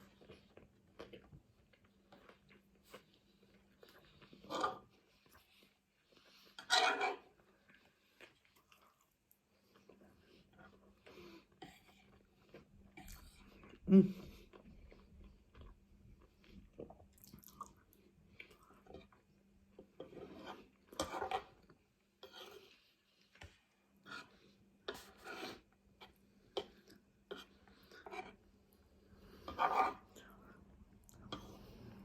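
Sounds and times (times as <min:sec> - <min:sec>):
person chewing food: 0:00.0 - 0:32.0.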